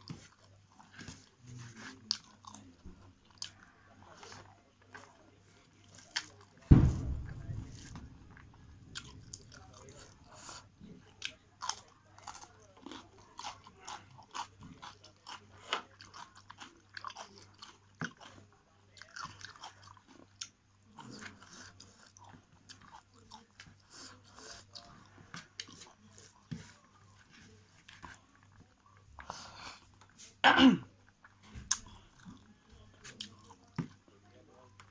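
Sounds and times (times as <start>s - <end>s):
person chewing food: 0.0s - 5.2s, 9.0s - 26.8s.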